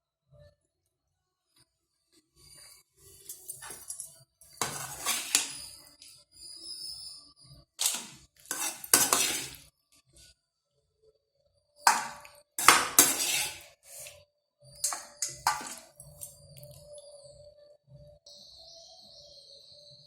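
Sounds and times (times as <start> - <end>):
spoon scraping metal pot: 3.2 - 5.8, 7.8 - 9.6, 11.9 - 14.2, 14.8 - 16.4.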